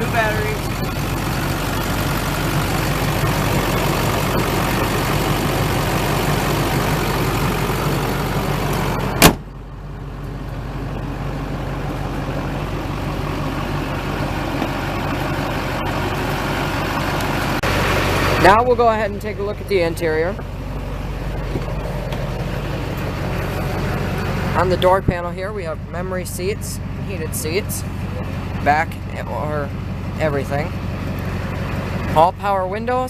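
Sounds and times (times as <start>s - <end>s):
diesel engine idling: 0.0s - 33.0s
hood slamming shut: 8.5s - 9.6s, 21.3s - 23.1s.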